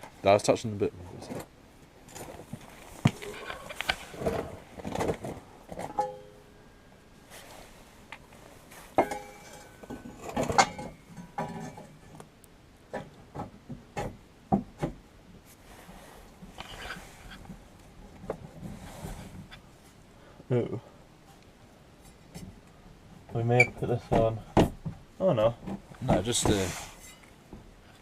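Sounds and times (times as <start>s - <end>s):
metal clanks and knocks: 3.2s - 6.7s, 8.9s - 12.2s.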